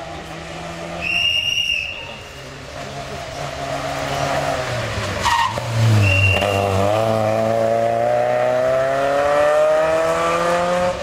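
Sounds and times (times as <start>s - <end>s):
car engine accelerating: 2.7s - 11.0s.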